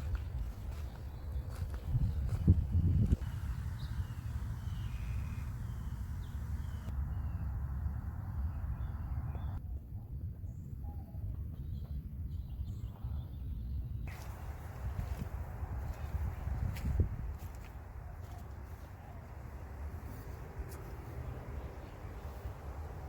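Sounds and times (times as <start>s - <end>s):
bird chirps: 3.3s - 7.5s
steady low rumble: 14.1s - 23.0s.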